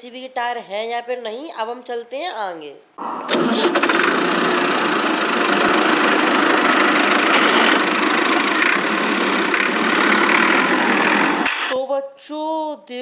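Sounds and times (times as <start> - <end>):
toy tractor motor running: 3.3 - 11.8.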